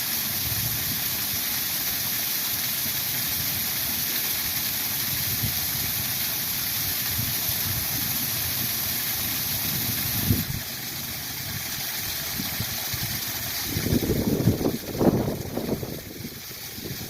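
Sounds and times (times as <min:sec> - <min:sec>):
waterfall rushing: 0:00.0 - 0:17.0
wind buffeting microphone: 0:09.8 - 0:10.6, 0:12.3 - 0:17.0.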